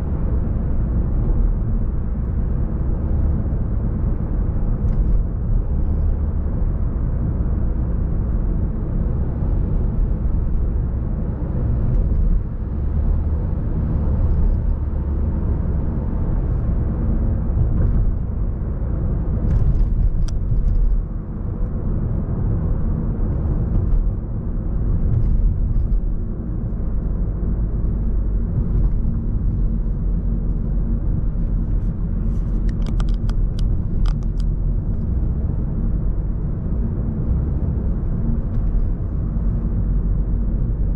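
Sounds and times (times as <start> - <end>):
road traffic rumble: 0.0 - 40.9.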